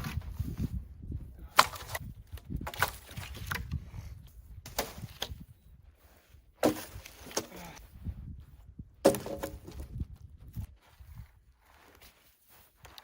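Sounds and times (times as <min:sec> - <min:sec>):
wooden poles knocking and cracking: 0:01.5 - 0:03.8, 0:06.6 - 0:07.8, 0:09.0 - 0:10.0.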